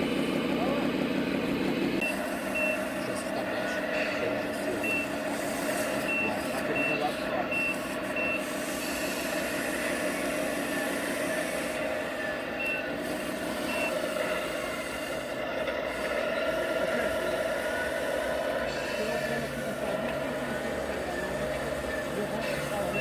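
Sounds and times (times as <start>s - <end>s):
engine drone: 0.0s - 23.0s
reversing beeper: 2.0s - 3.2s, 4.0s - 5.3s, 5.9s - 9.0s, 10.8s - 14.4s.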